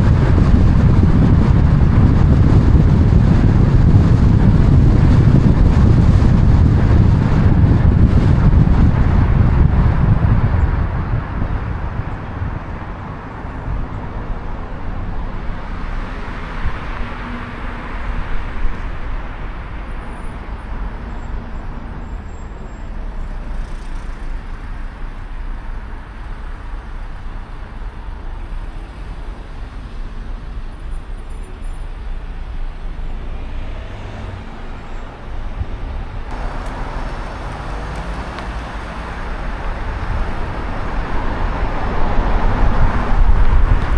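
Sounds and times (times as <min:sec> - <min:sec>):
traffic noise: 0:00.0 - 0:43.9
vehicle passing close: 0:36.3 - 0:43.9.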